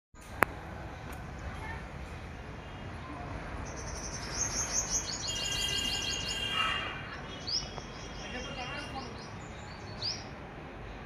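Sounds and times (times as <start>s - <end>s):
small birds chirping: 2.6s - 11.0s
whistled bird notes: 3.7s - 10.3s.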